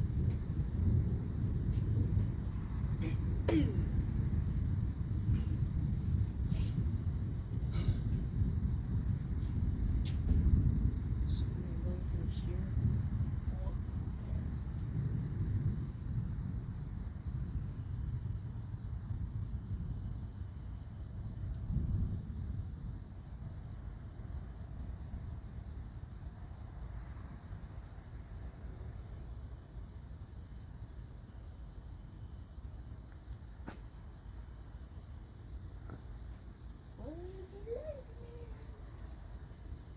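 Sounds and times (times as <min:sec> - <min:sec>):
low rumble: 0:00.0 - 0:16.0
crickets chirping: 0:00.0 - 0:39.9.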